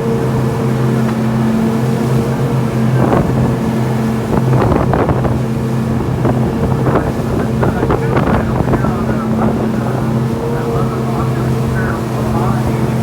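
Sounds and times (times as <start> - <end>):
boat engine droning: 0.0 - 13.0
wind noise on microphone: 2.9 - 13.0.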